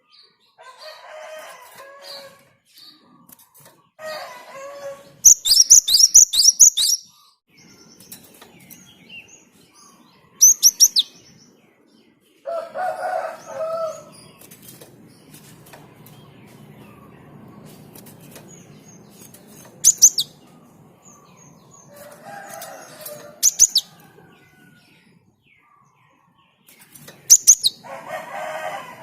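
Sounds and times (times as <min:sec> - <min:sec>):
sparrow singing clicks and notes: 0:05.2 - 0:27.9
lower bird calls: 0:09.8 - 0:11.2, 0:18.4 - 0:22.0.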